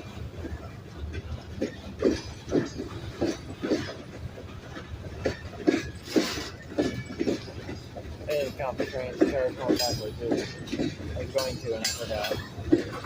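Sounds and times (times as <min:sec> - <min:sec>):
model train wheels clicking: 0:01.1 - 0:13.0.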